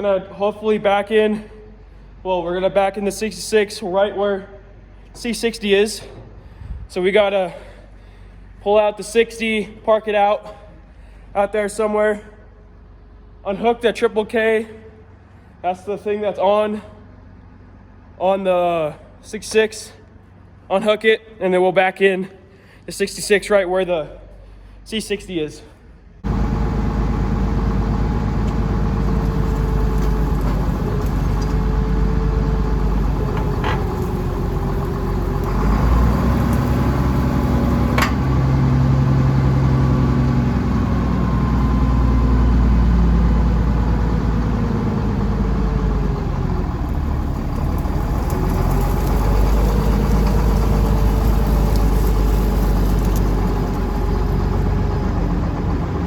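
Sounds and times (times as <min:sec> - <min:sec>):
farm vehicle engine idling: 0:26.2 - 0:56.0.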